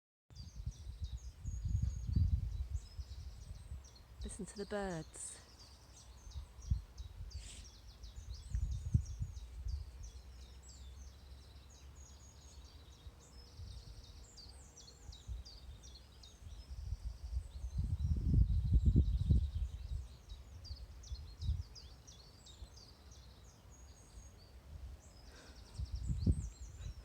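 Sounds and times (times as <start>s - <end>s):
low rumbling on microphone: 0.3s - 3.9s, 8.1s - 10.2s, 16.5s - 21.7s, 25.7s - 27.0s
songbirds chirping: 0.3s - 27.0s.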